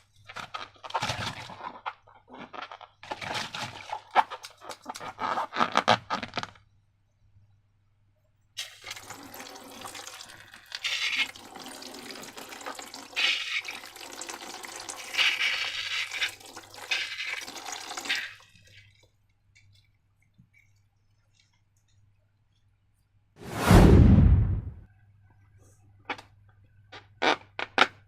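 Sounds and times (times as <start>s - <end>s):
liquid pouring and sloshing: 8.6s - 22.1s.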